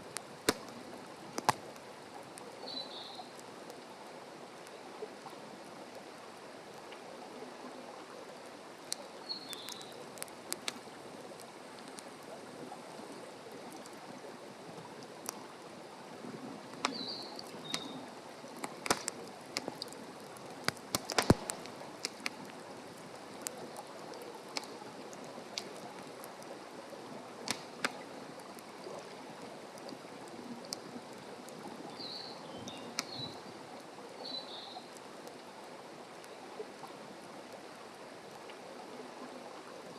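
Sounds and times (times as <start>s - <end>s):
fire popping: 0.0s - 2.6s, 8.8s - 12.5s, 16.6s - 26.5s, 27.4s - 28.8s, 32.6s - 33.4s
campfire crackling: 0.0s - 38.5s
soft steady hiss: 0.0s - 39.9s.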